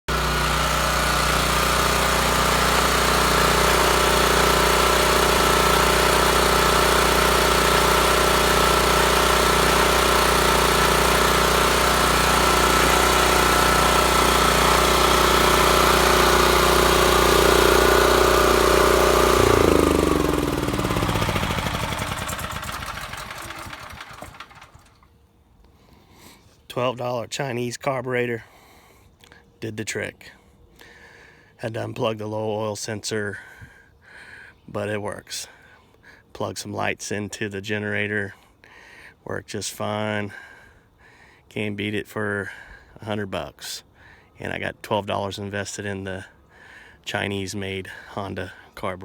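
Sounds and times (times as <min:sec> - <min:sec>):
portable generator engine running: 0:00.1 - 0:25.1.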